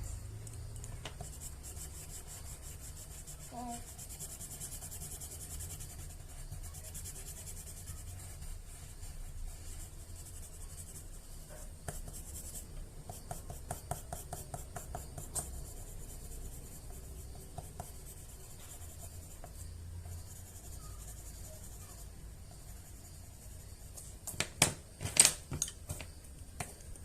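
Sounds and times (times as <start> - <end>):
pen scratching on paper: 1.1 - 24.0.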